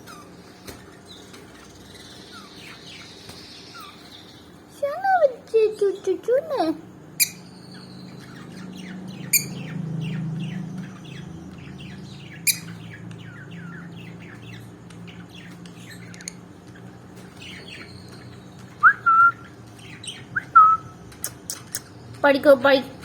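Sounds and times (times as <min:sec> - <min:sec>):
parrot chirping: 0:00.0 - 0:00.5, 0:01.1 - 0:04.5, 0:06.6 - 0:14.6
sharp clicks: 0:21.1 - 0:21.9.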